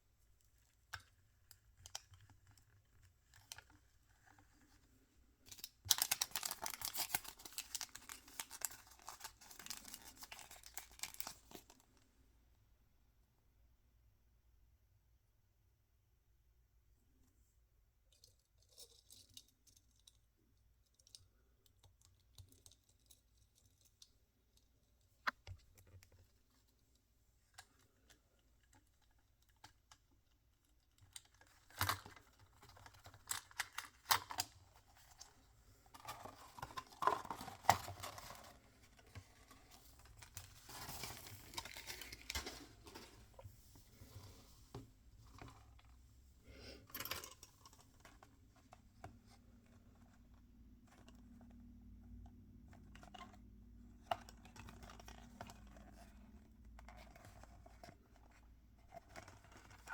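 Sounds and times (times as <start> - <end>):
packaging rustling: 5.9 - 11.8, 36.2 - 43.8.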